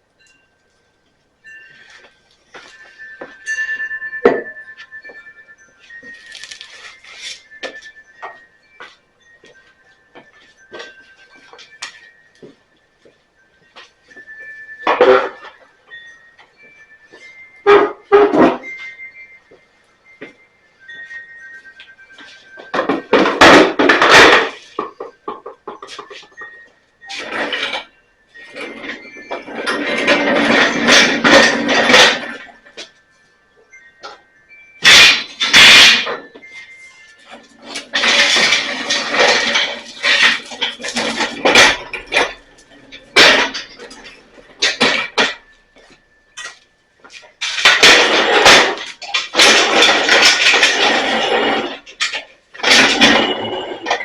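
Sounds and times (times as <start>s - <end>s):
equipment clattering on hard floor: 22.2s - 26.4s, 28.4s - 32.6s, 37.3s - 54.0s
metal clanking: 22.3s - 33.0s, 34.8s - 46.6s, 47.2s - 54.0s
metal rattling: 22.4s - 46.6s, 47.2s - 54.0s.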